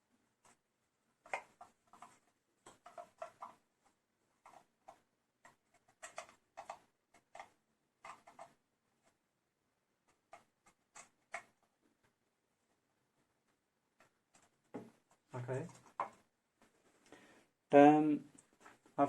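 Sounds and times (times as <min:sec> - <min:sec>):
plastic clicks and rustles: 0:01.2 - 0:03.6, 0:04.4 - 0:08.6.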